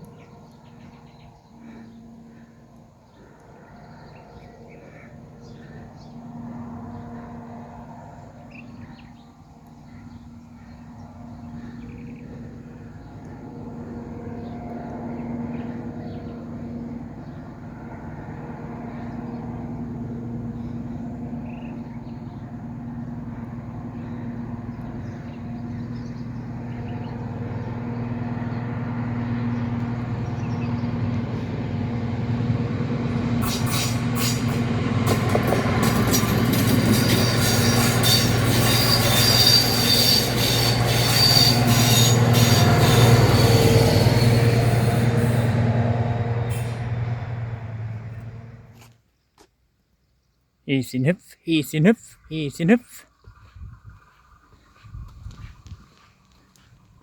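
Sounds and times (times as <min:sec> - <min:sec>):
train engine humming: 0:10.2 - 0:48.8.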